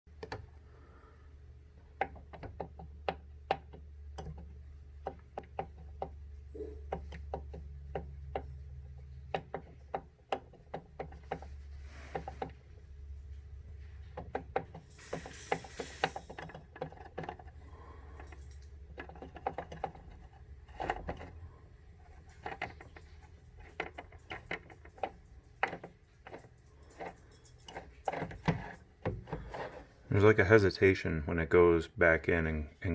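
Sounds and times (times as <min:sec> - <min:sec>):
low steady hum: 0:00.1 - 0:32.9
rowing machine chain clicking: 0:14.7 - 0:19.4.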